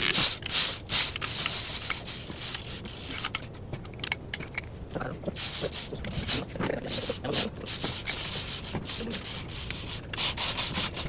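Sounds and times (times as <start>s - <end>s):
metal parts and tools clattering: 3.0s - 4.7s.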